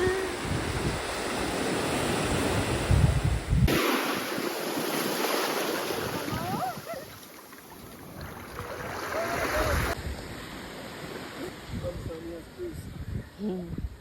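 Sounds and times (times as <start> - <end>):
wind buffeting microphone: 0.0 - 3.8
sea surf: 0.0 - 12.6.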